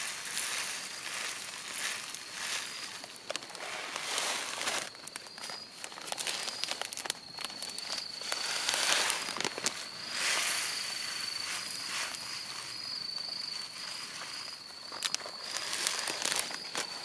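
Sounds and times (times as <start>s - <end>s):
crunching footsteps: 0.0s - 17.0s
insect trilling: 0.0s - 17.0s.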